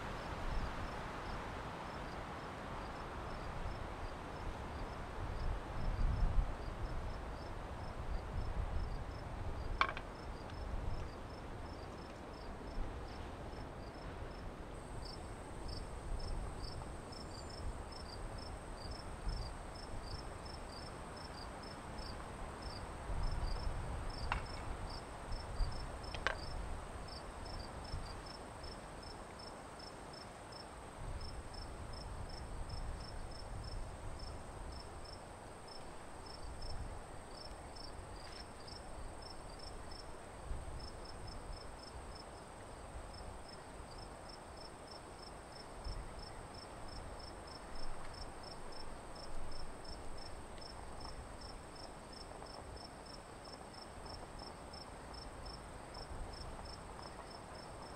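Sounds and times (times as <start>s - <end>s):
crickets chirping: 0.1s - 57.9s.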